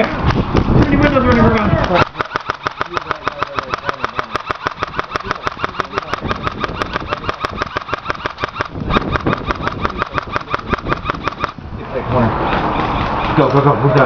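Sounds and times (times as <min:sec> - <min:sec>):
airsoft gun firing full auto: 0:00.8 - 0:11.6.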